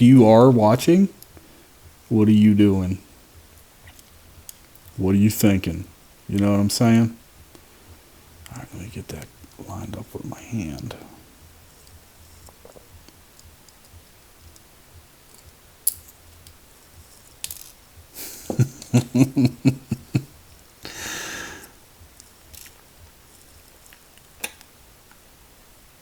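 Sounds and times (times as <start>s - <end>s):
small padlock parts clicking: 15.3s - 17.8s, 22.2s - 22.8s
short hiss: 18.2s - 19.5s.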